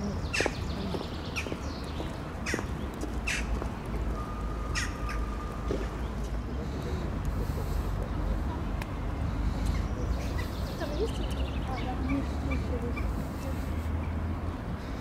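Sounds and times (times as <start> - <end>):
bird giving harsh calls: 2.4 - 3.6, 4.7 - 5.3.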